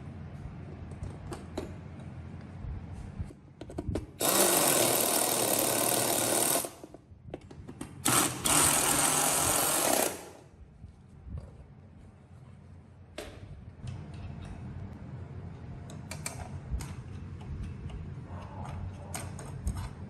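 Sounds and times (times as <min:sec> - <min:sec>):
handheld power tool running: 0:04.2 - 0:06.9, 0:08.0 - 0:10.4.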